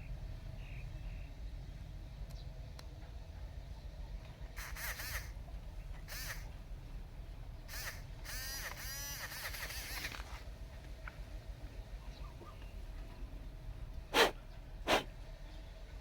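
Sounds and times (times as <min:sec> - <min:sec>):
bird harsh calls: 0:14.1 - 0:15.1.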